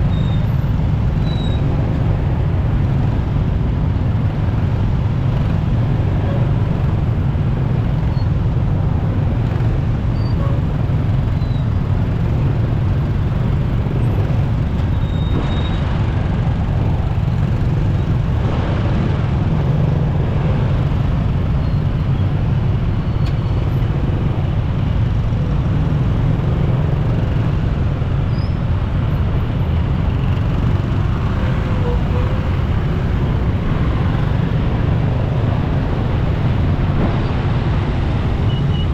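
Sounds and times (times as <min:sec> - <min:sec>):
surrounding vehicles: 0:00.0 - 0:38.9
wind and road noise: 0:00.0 - 0:38.9.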